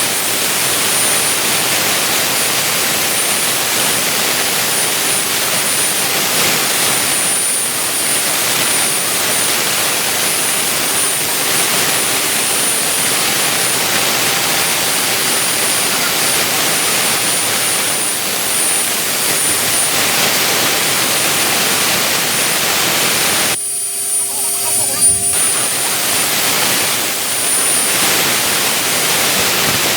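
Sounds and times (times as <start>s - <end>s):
high machine whine: 0.0s - 29.9s
milling machine hissing: 5.1s - 29.9s.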